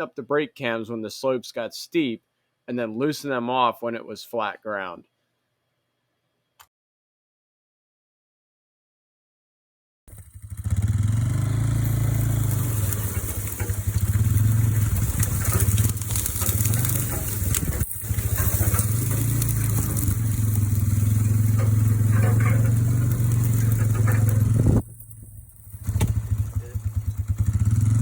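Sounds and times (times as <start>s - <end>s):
vehicle engine running: 10.1s - 28.0s.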